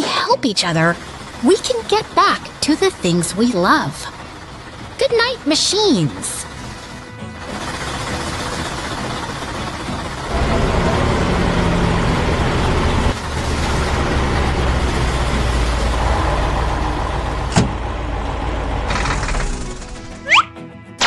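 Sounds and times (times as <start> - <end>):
vehicle engine running: 0.0 - 20.3.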